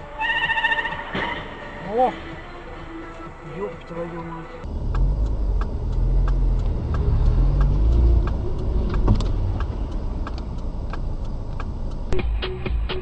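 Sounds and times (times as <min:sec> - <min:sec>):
car engine and road rumble: 0:00.0 - 0:13.0
light regular ticking: 0:04.6 - 0:12.2.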